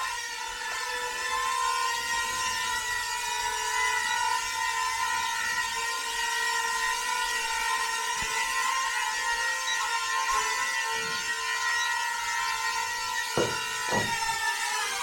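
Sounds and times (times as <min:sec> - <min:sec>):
toy drone propellers whining: 0:00.0 - 0:15.0.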